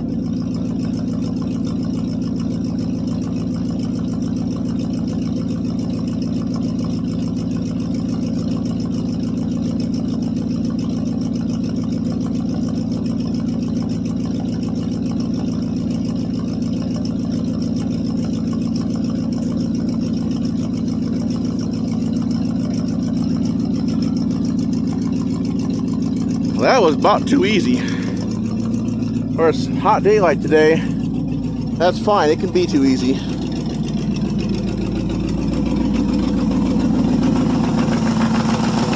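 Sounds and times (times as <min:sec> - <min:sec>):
engine idling: 0:00.0 - 0:38.9.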